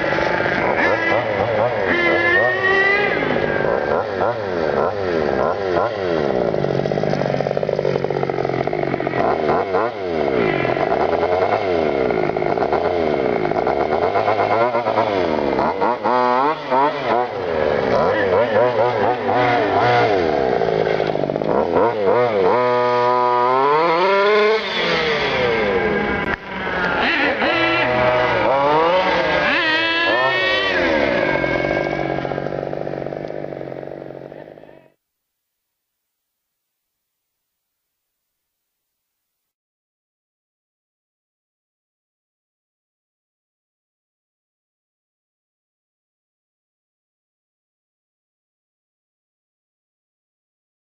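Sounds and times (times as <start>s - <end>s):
two-stroke engine revving: 0.0s - 35.0s.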